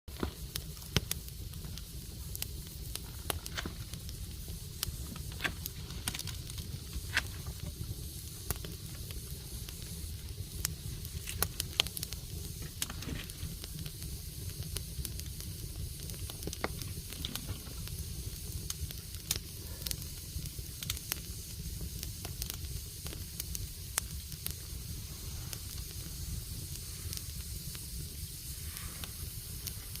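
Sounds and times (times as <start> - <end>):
wood fire crackling: 0.1 - 30.0.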